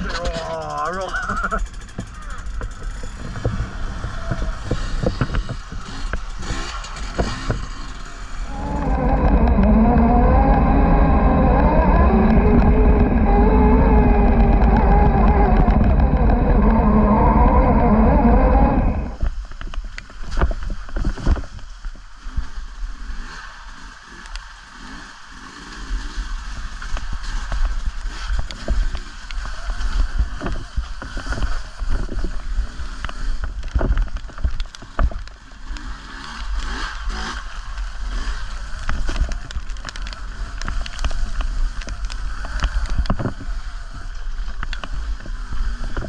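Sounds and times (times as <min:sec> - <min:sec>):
dirt bike engine revving: 0:00.0 - 0:19.4, 0:22.2 - 0:46.0
knocks and rattles: 0:00.0 - 0:21.6
low rumble: 0:00.0 - 0:22.6
wind rush: 0:08.2 - 0:19.4.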